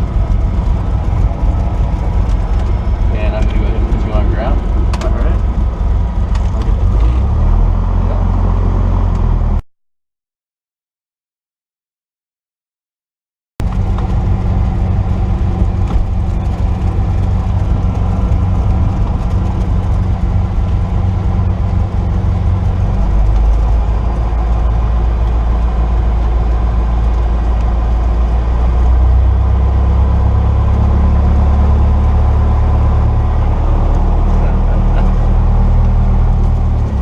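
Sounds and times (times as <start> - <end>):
airplane piston engine droning: 0.0 - 6.3.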